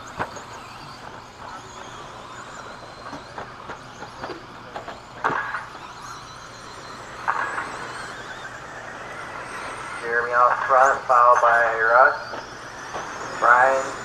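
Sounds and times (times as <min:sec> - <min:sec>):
sharp knocks and clacks: 0:00.0 - 0:05.8
toy truck motors and tyres: 0:00.0 - 0:14.0.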